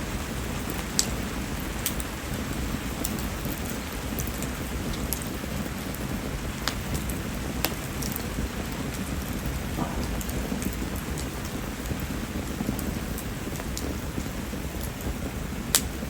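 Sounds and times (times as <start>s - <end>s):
fire ticking: 0.0s - 16.0s
steady rain falling: 0.0s - 16.0s.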